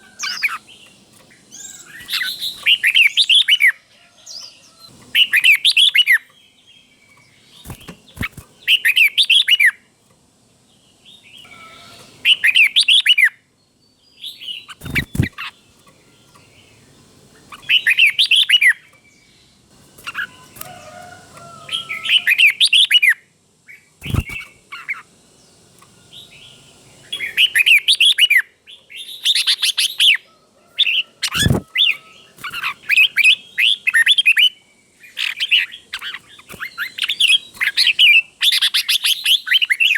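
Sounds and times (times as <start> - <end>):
bulbul singing: 0.0 - 3.8, 4.4 - 9.9, 10.9 - 30.2, 31.2 - 39.9.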